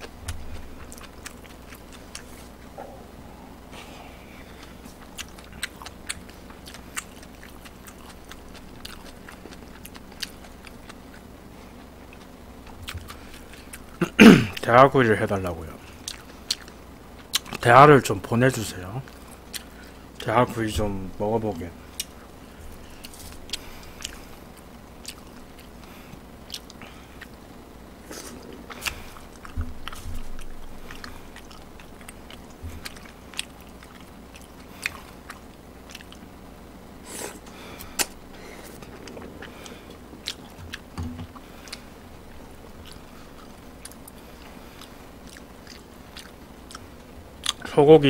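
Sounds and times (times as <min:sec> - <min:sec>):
person chewing: 0:00.0 - 0:14.1, 0:15.8 - 0:17.6, 0:19.1 - 0:20.3, 0:21.8 - 0:36.4, 0:37.0 - 0:47.7.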